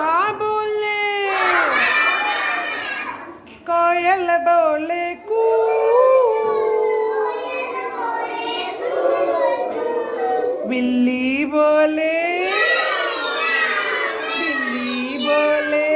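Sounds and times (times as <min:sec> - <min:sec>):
child singing long notes: 0:05.2 - 0:11.0, 0:12.3 - 0:15.9.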